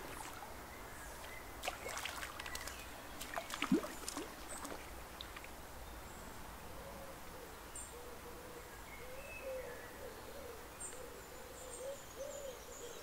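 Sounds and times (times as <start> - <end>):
small birds chirping: 0.0 - 6.4
soft background hiss: 0.0 - 13.0
bird cooing: 6.8 - 13.0.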